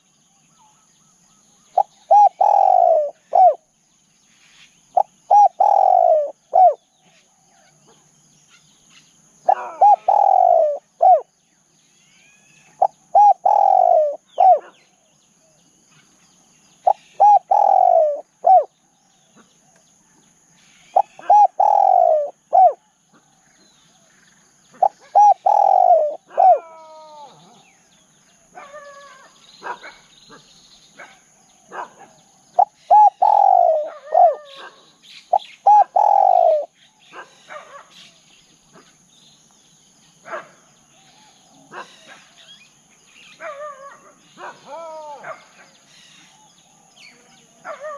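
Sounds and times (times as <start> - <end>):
faint bird chirps: 0.0 - 47.9
dove cooing: 1.8 - 3.6, 5.0 - 6.8, 9.4 - 11.3, 12.8 - 14.8, 16.8 - 18.7, 20.9 - 23.3, 24.8 - 27.7, 32.6 - 37.3.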